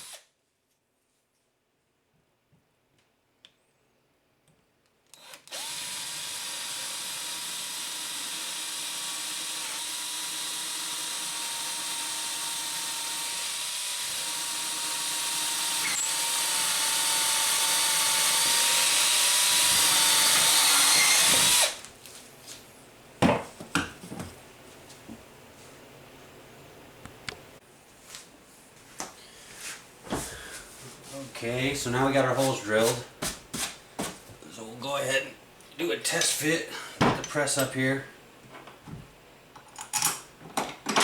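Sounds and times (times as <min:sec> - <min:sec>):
electric drill boring: 0:00.0 - 0:00.2, 0:05.2 - 0:21.8.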